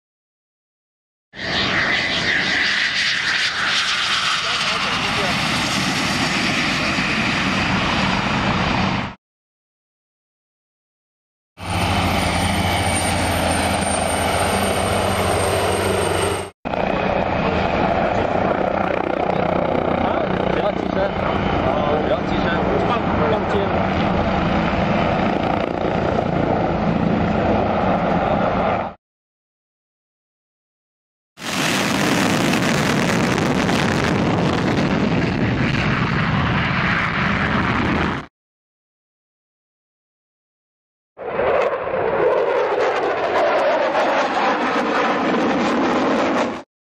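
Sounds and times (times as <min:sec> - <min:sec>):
aircraft engine in flight: 0:01.4 - 0:09.2, 0:11.6 - 0:29.0, 0:31.4 - 0:38.3, 0:41.2 - 0:46.7
helicopter rotor and turbine hum: 0:01.4 - 0:09.2, 0:11.6 - 0:29.0, 0:31.4 - 0:38.3, 0:41.2 - 0:46.7
high turbine whine: 0:01.4 - 0:09.2, 0:11.6 - 0:29.0.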